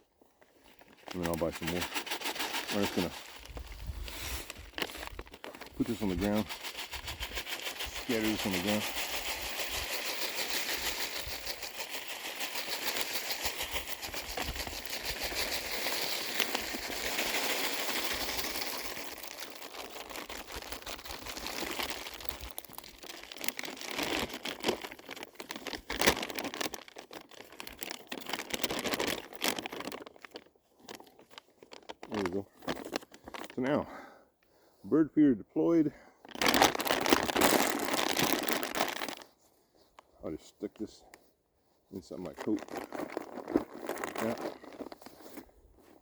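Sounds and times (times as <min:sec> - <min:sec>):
birdseed bag crinkling: 0:00.6 - 0:33.6, 0:36.3 - 0:39.3, 0:42.0 - 0:45.5.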